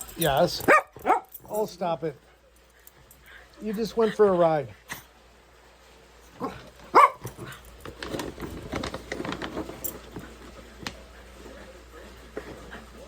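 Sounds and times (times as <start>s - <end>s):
dog high cry: 6.4s - 7.5s.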